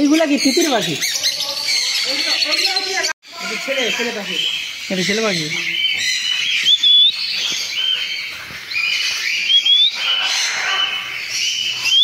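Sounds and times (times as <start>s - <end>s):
birds chirping: 0.0s - 12.0s
rising whistled bird notes: 4.2s - 12.0s.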